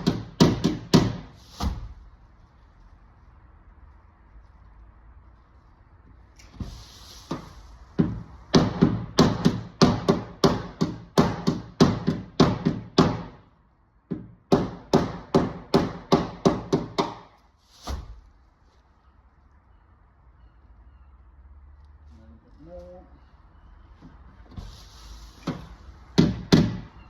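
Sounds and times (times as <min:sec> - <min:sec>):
hammer on sheet metal: 0:00.0 - 0:01.8, 0:07.3 - 0:13.4, 0:14.1 - 0:17.3.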